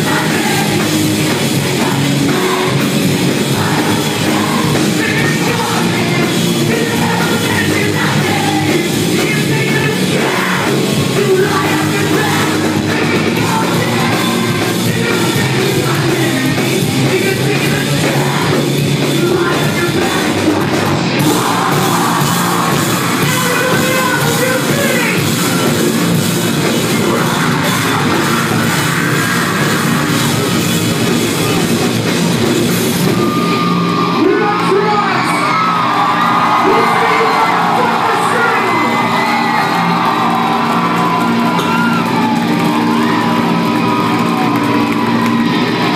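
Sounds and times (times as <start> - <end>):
live rock band playing: 0.0 - 45.9
person singing: 3.5 - 25.2.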